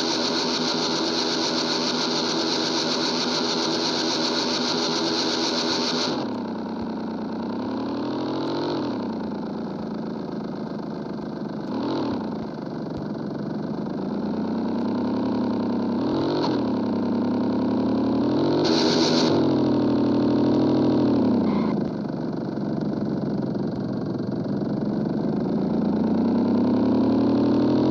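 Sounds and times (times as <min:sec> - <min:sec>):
engine throttle blips: 0:00.0 - 0:06.9, 0:18.6 - 0:19.4, 0:21.4 - 0:21.9
motorcycle engine idling: 0:00.0 - 0:16.0, 0:16.6 - 0:26.8.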